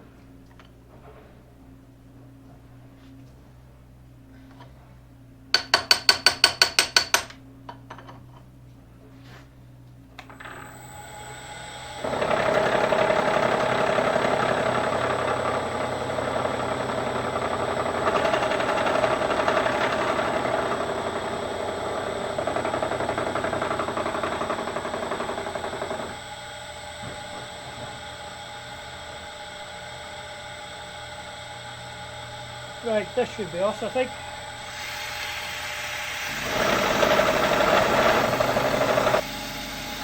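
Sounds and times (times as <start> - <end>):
spindle motor humming: 10.2 - 40.0
milling cutter grinding metal: 10.3 - 40.0.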